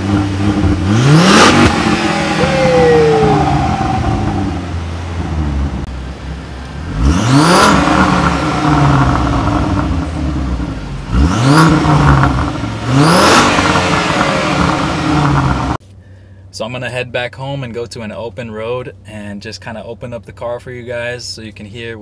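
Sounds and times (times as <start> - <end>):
car engine revving: 0.0 - 15.8
car engine idling: 0.0 - 16.6.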